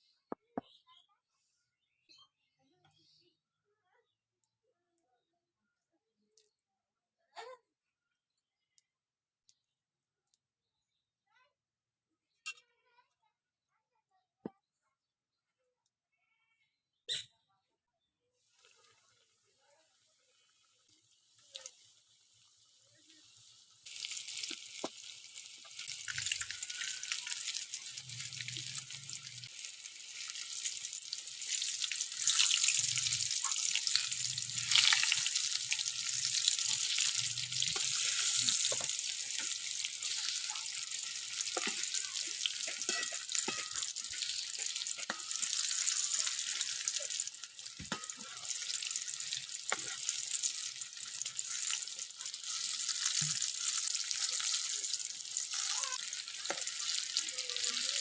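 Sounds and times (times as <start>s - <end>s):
chicken frying in oil: 18.4s - 58.0s
oil popping: 23.8s - 51.4s.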